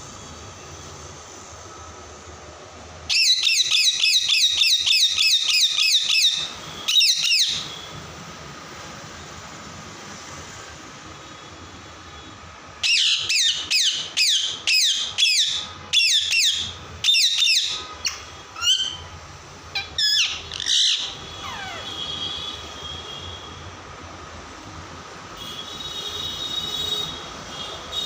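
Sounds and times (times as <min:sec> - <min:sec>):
parrot squawking: 0:03.1 - 0:07.7, 0:12.8 - 0:19.1, 0:19.7 - 0:22.0.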